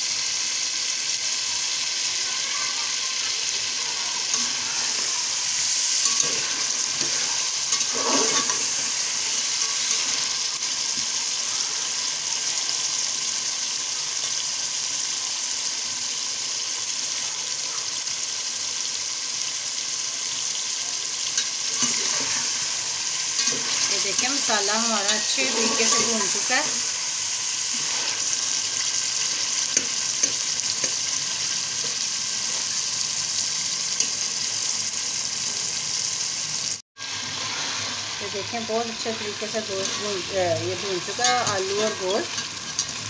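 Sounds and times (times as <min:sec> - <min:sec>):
food sizzling in oil: 0:00.0 - 0:43.0
spatula stirring and scraping: 0:04.2 - 0:11.2, 0:21.4 - 0:32.8, 0:39.5 - 0:43.0.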